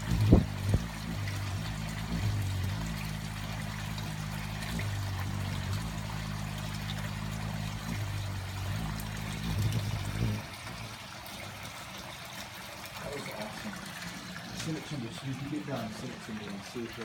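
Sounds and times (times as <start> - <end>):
hummingbird wings humming: 0.0 - 16.0.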